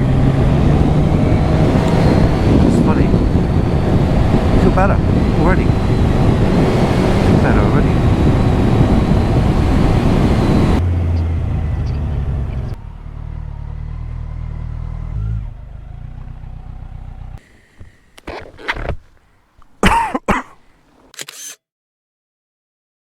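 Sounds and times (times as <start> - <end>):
wind rush: 0.0 - 12.5
motorcycle engine running: 0.0 - 17.4
sharp clicks: 21.0 - 21.6.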